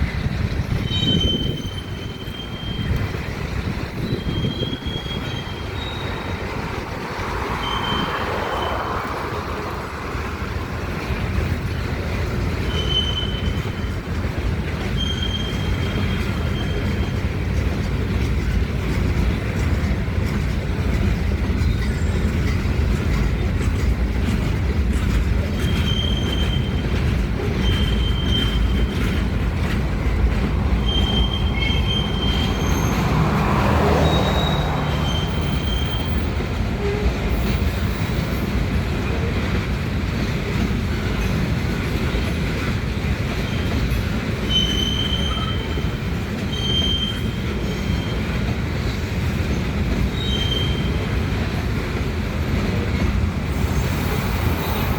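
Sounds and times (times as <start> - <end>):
freight train wheels rumbling: 0.0 - 54.9
high wheel squeals: 0.1 - 9.8, 11.7 - 14.1, 14.8 - 17.5, 25.4 - 38.6, 43.4 - 51.4, 52.3 - 54.9.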